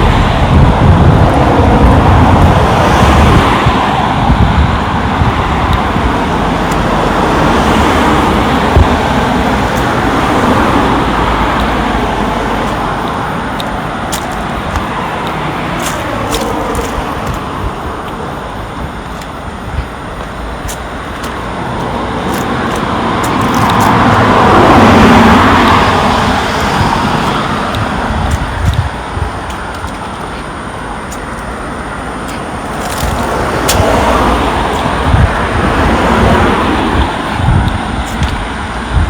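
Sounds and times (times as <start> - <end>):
vehicle passing close: 0.0 - 19.0, 20.6 - 29.8
road traffic passing: 0.0 - 39.0.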